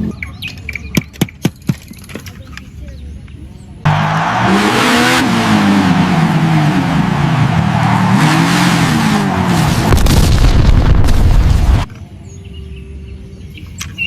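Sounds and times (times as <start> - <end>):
car engine revving: 3.9 - 11.9
deep rumble: 5.4 - 11.9.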